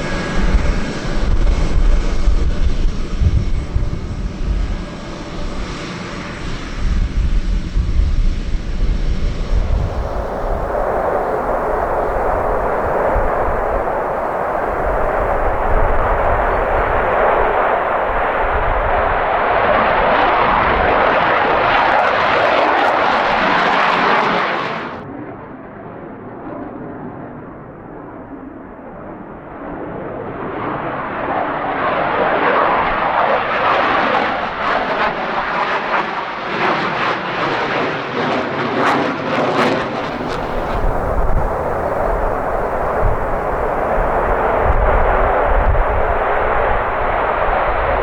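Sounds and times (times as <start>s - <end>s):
jet aircraft engine roar: 0.0s - 48.0s
deep rumble: 9.2s - 19.9s, 40.0s - 48.0s.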